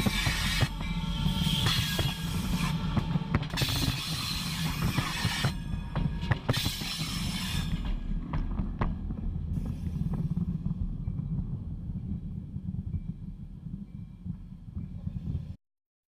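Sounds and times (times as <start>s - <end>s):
steel wheels rushing on rail: 0.0s - 8.2s
low rumble: 0.0s - 15.6s.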